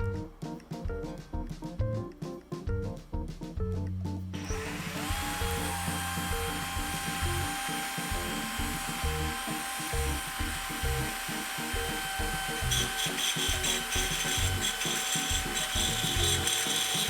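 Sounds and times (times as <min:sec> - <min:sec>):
background music: 0:00.0 - 0:17.0
cordless drill motor whine: 0:04.4 - 0:17.0.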